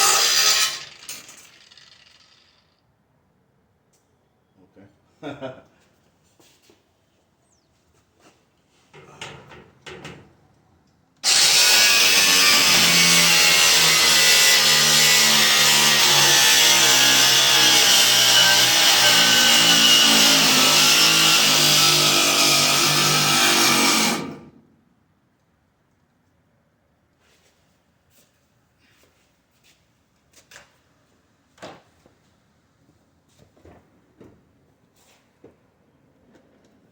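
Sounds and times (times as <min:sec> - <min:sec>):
power saw cutting steel bolts: 0:00.0 - 0:02.7, 0:11.2 - 0:24.6.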